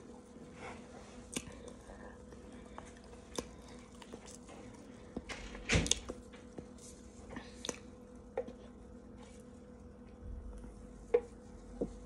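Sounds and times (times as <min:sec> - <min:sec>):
chewing: 0:00.6 - 0:07.9.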